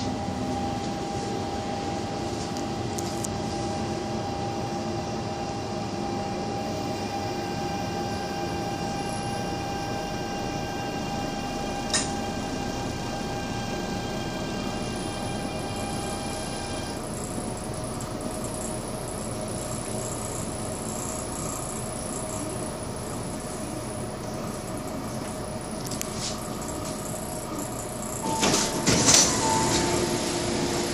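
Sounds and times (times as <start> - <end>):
train running rumble: 0.0 - 30.9.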